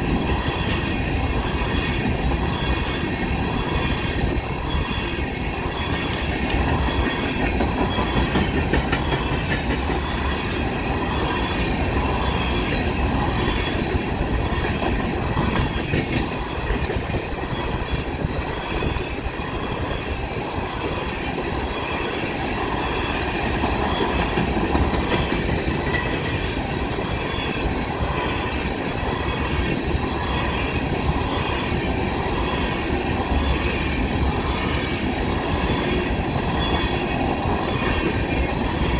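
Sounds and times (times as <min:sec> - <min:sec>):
faint high wheel ringing: 0:00.0 - 0:38.9
freight train rail rumble: 0:00.0 - 0:38.9
wheels clicking over rail joints: 0:02.4 - 0:38.9.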